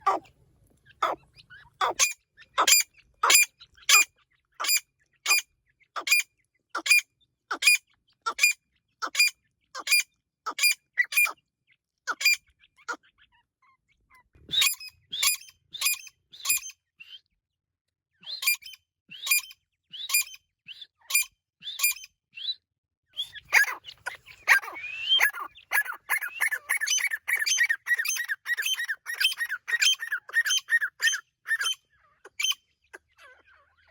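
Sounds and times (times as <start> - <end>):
partridge calling: 0.0 - 0.3, 0.9 - 5.4, 6.0 - 6.2, 6.8 - 11.4, 12.1 - 13.1, 14.5 - 17.2, 23.2 - 33.9.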